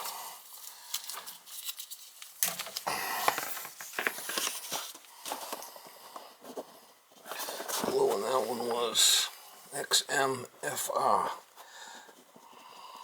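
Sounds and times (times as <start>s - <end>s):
tape crinkling and tearing: 0.0s - 5.1s.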